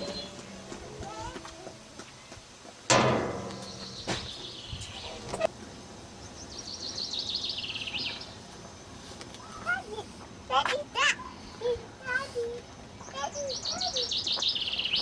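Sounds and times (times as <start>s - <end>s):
songbird trilling: 13.0s - 15.0s.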